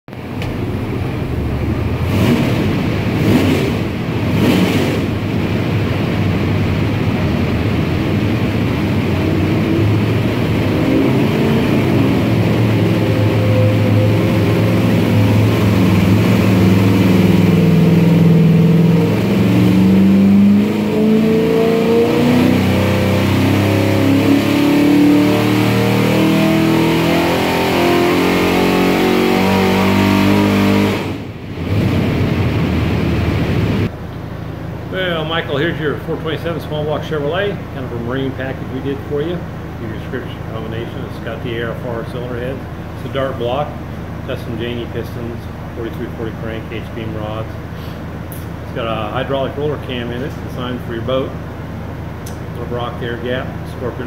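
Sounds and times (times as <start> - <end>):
engine running loudly: 0.2 - 34.0.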